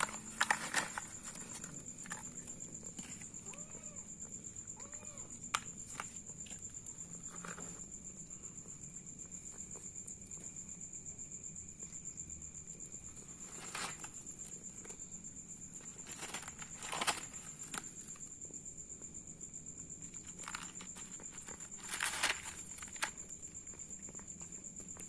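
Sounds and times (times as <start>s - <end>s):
soft rustles: 0.0s - 3.9s, 13.1s - 15.0s, 15.7s - 18.2s, 20.1s - 23.4s
insect pulsing trill: 0.0s - 7.3s.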